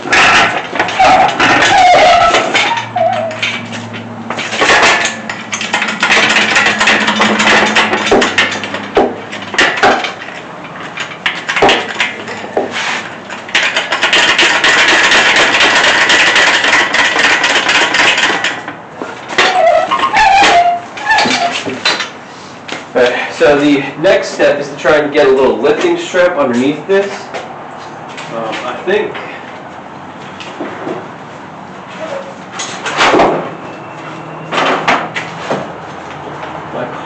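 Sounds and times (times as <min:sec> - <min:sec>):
metal clanking and knocking: 0:00.0 - 0:22.2, 0:31.9 - 0:35.7
rattling: 0:00.0 - 0:22.2.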